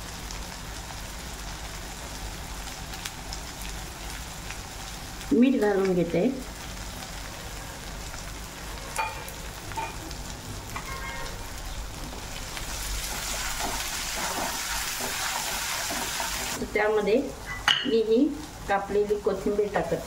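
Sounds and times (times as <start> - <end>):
onion paste sizzling in oil: 0.0 - 20.0
steel spoon clinking on pan: 9.0 - 10.0.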